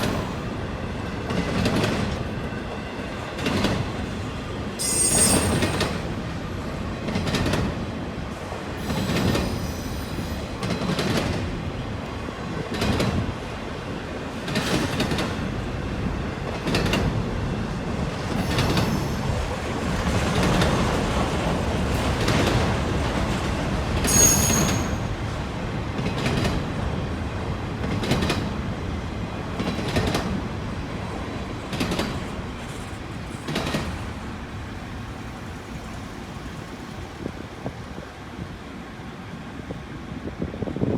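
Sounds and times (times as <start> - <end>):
train wheels clacking on rail joints: 0.0 - 2.4, 3.2 - 4.2, 7.0 - 11.7, 12.4 - 13.4, 14.3 - 15.6, 16.4 - 17.3, 17.9 - 27.0, 27.7 - 28.8, 29.4 - 38.0
freight train rumble: 0.0 - 40.9
high wheel squeal: 4.8 - 5.8, 8.8 - 10.4, 24.0 - 25.1.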